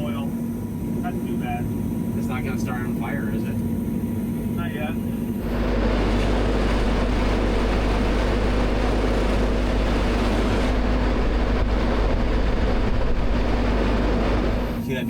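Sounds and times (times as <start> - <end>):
large engine running: 0.0 - 15.0.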